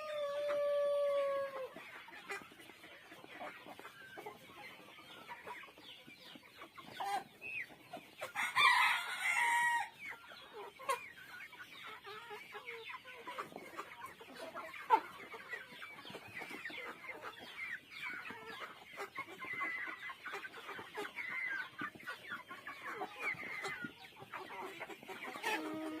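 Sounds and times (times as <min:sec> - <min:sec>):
chickens clucking: 0:00.0 - 0:26.0
rooster crowing: 0:08.4 - 0:09.9.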